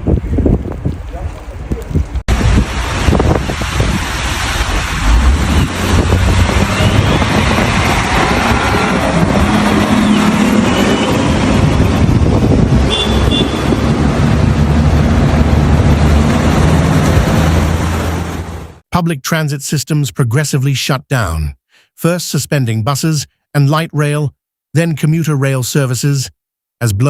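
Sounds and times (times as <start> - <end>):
road noise: 0.0 - 18.8
vehicle engines humming: 2.3 - 18.8.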